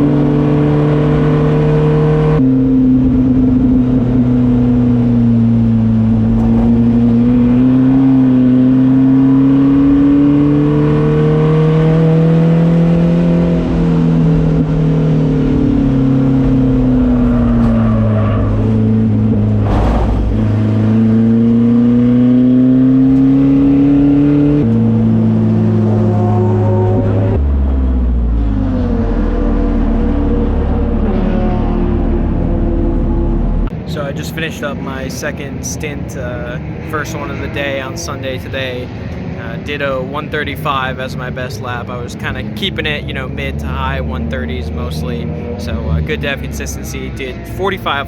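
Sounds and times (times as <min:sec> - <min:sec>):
race car engine running: 0:00.0 - 0:48.0
thump: 0:19.6 - 0:20.5.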